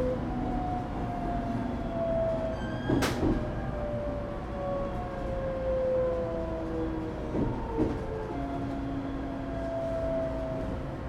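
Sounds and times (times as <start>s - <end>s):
train wheels rumbling on rails: 1.6s - 3.6s, 6.1s - 8.9s.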